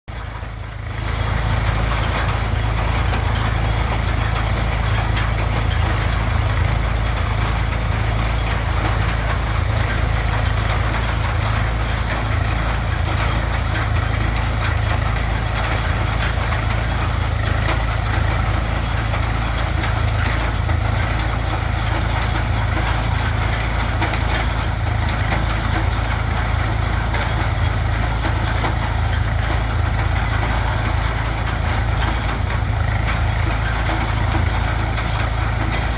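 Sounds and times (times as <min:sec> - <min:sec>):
tractor diesel engine running: 0:00.1 - 0:35.9.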